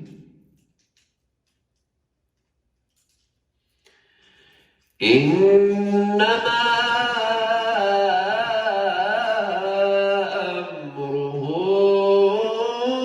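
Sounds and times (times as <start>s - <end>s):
man chanting melodically: 5.0s - 13.0s.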